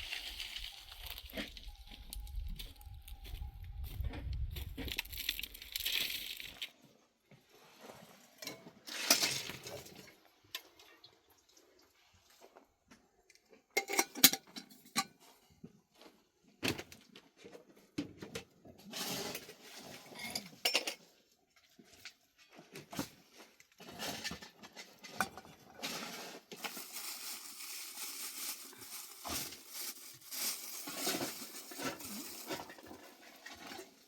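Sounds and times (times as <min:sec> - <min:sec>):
rustling: 0:04.5 - 0:06.7, 0:25.8 - 0:34.0.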